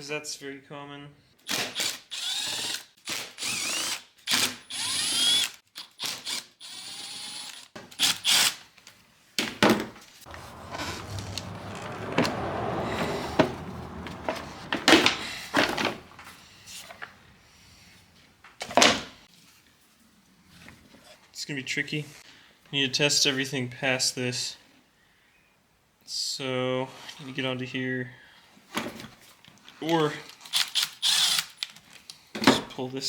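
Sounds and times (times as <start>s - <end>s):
parts clanking and rattling: 10.3s - 17.1s.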